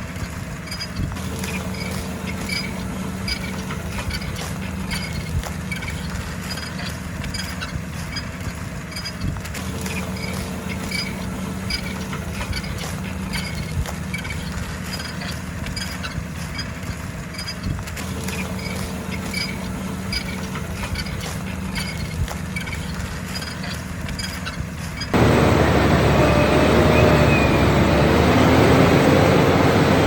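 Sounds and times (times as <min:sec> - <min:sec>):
faint clicks and rattles: 0:00.0 - 0:25.2
tractor engine droning: 0:00.0 - 0:30.0.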